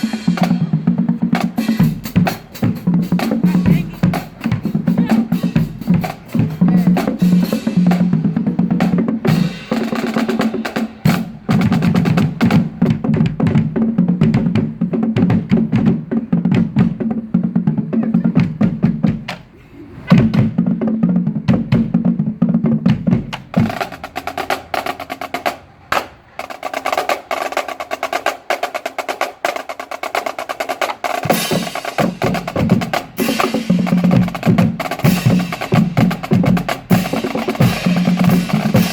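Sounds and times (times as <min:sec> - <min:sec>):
low drums: 0:00.0 - 0:38.9.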